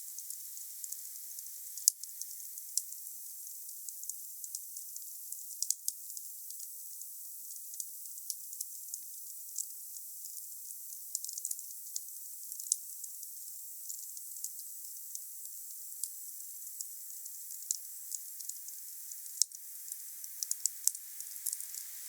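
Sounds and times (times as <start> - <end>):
wood fire hissing: 19.8 - 22.0.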